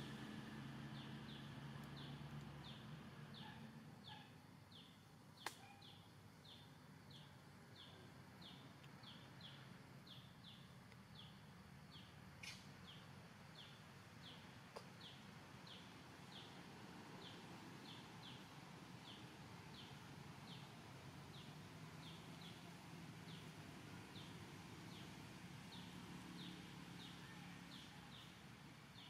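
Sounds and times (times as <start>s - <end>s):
bird chirping: 0.9s - 14.4s.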